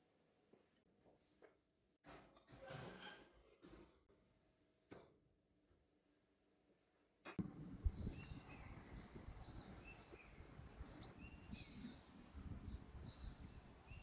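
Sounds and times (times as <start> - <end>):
small birds chirping: 7.8 - 14.0.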